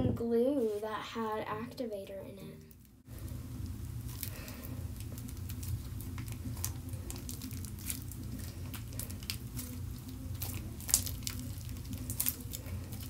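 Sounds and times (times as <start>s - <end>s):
steady low hum: 0.0s - 13.0s
slime sticky pops and crackles: 5.0s - 13.0s.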